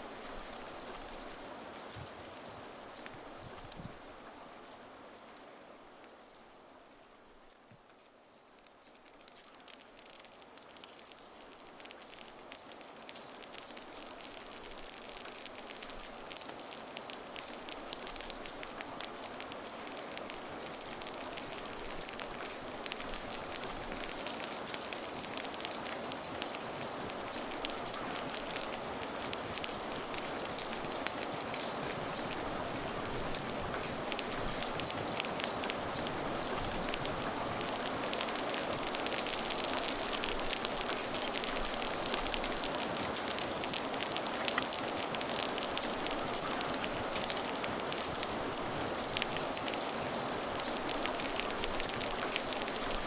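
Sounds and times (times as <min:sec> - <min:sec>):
steady rain hiss: 0:00.0 - 0:53.0
raindrops ticking: 0:00.1 - 0:53.0.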